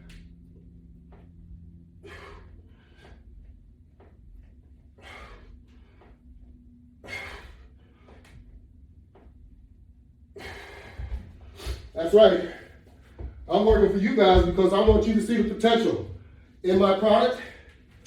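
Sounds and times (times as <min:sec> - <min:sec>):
steady low hum: 0:00.0 - 0:18.0
man breathing hard: 0:02.0 - 0:03.7, 0:04.8 - 0:08.6, 0:10.3 - 0:15.2.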